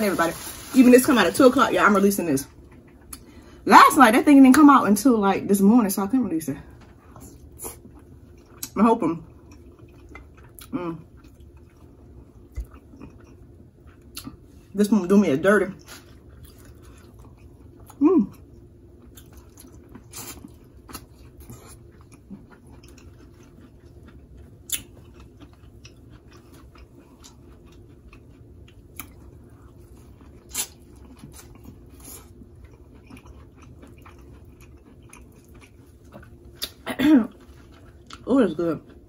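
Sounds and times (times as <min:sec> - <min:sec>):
faint steady hum: 0:00.0 - 0:39.0
person chewing food: 0:06.8 - 0:14.6, 0:15.8 - 0:38.3.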